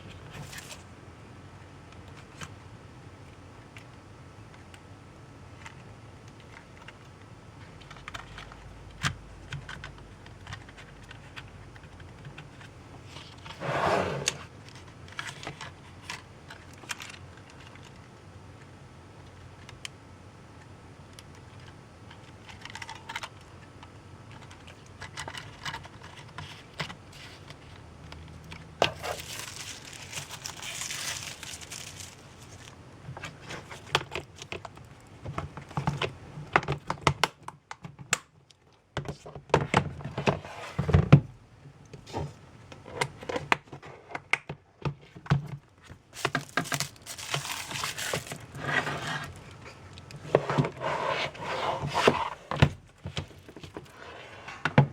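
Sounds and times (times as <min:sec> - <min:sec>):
wrapping crinkling: 0:28.4 - 0:35.1, 0:46.1 - 0:50.1.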